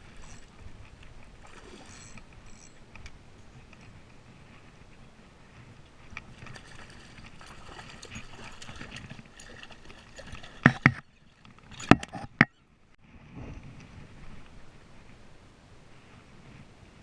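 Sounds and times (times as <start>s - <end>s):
faint water splashing: 0.0s - 3.8s, 5.6s - 12.2s.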